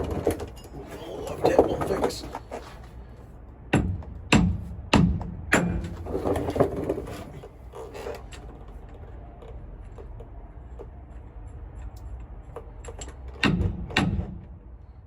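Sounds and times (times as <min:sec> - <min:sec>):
metal tools rattling: 0:00.0 - 0:02.7
sharp knocks: 0:03.7 - 0:06.4, 0:13.4 - 0:14.6.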